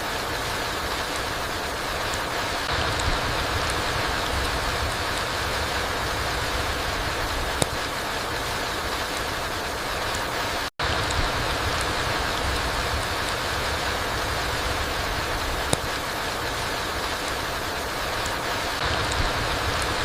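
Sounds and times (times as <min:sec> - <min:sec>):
rain falling on forest floor: 0:00.0 - 0:20.0
sharp tick: 0:07.5 - 0:07.8, 0:15.6 - 0:16.1.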